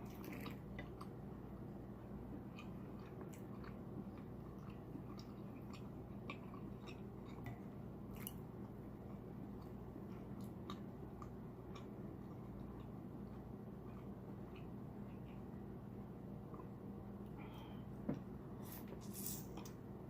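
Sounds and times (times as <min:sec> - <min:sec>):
steady low hum: 0:00.0 - 0:20.0
wet chewing and lip smacking: 0:02.5 - 0:15.6.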